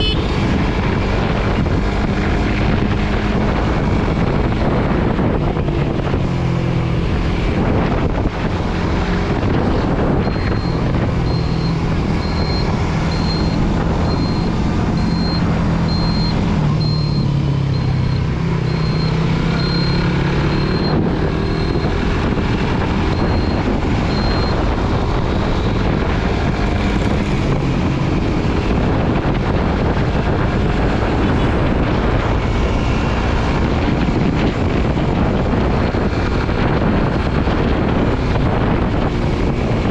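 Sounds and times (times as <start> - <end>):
motorcycle engine cruising: 0.0 - 39.9
wind rush on microphone: 0.0 - 39.9
high electronic beep: 10.2 - 22.0, 23.1 - 24.7.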